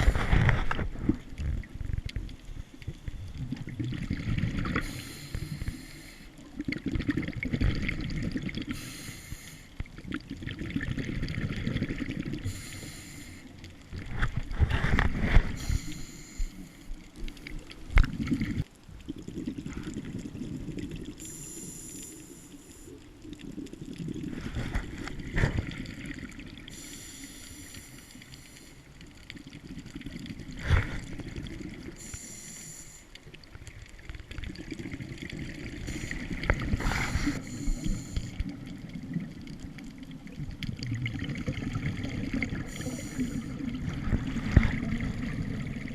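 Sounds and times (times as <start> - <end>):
exhaled bubbles rumbling: 0.0 - 5.7, 6.4 - 8.8, 9.8 - 12.6, 17.0 - 21.2, 23.0 - 26.8, 28.9 - 32.1, 33.3 - 45.9
regulator hiss: 4.8 - 6.3, 8.8 - 9.8, 12.4 - 13.6, 15.6 - 16.9, 21.2 - 23.0, 26.7 - 28.8, 32.0 - 33.1, 35.8 - 38.4, 42.7 - 43.6.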